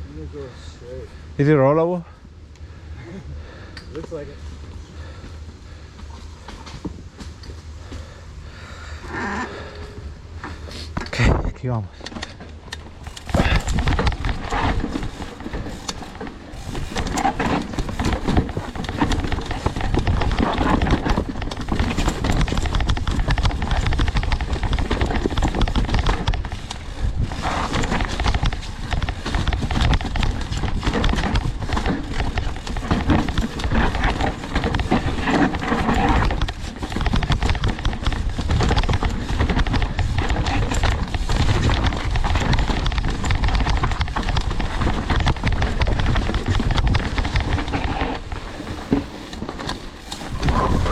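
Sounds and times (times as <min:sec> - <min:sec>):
tyres clattering over dirt and rocks: 0:10.5 - 0:50.9
bike frame rattling: 0:12.0 - 0:50.9.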